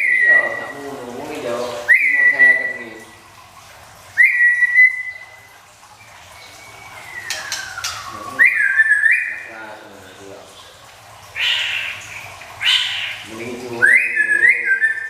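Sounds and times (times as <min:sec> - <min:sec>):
bird singing whistled notes: 0:01.8 - 0:02.8, 0:04.2 - 0:05.4, 0:06.4 - 0:09.5, 0:13.8 - 0:15.0.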